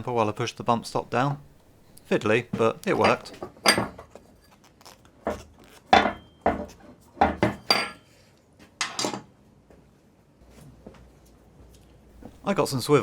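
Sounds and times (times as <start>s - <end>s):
metal tools clinking: 7.6s - 8.0s.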